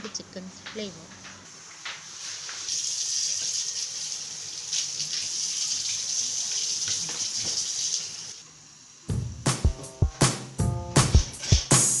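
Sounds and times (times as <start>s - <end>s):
tap water running into sink: 2.3s - 8.4s.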